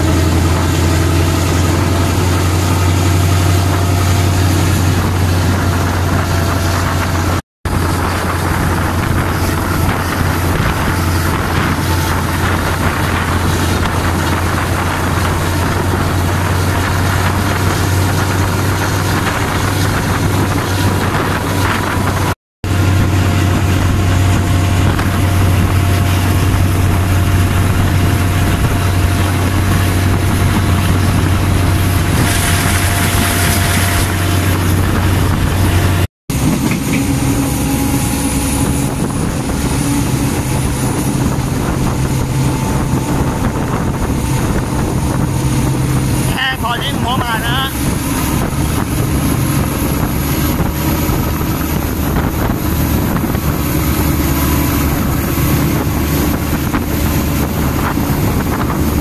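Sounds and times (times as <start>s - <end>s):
diesel engine drone: 0.0s - 59.0s
wind and track noise: 0.0s - 59.0s.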